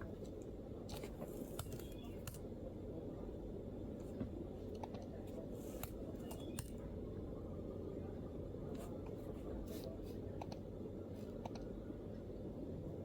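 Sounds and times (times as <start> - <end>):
low background murmur: 0.0 - 13.0
laptop keyboard clicks: 0.9 - 2.4.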